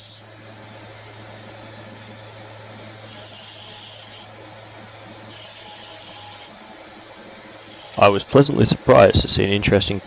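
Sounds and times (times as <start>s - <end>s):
blade grinding hiss: 0.0s - 0.2s, 3.0s - 4.3s, 5.3s - 6.6s, 7.6s - 8.6s
electric grinder humming: 0.0s - 0.3s, 2.8s - 6.6s, 7.6s - 8.4s.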